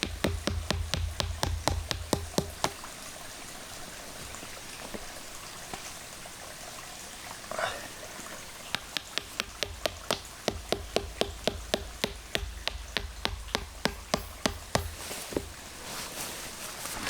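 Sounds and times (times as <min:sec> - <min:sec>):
rapid ringing taps: 0:00.0 - 0:02.8, 0:08.7 - 0:15.1.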